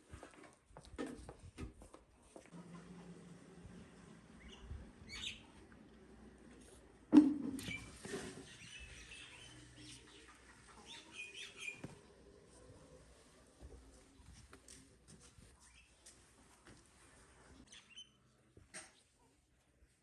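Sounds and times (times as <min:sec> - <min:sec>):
birds chirping: 0:04.4 - 0:05.9, 0:07.6 - 0:12.8.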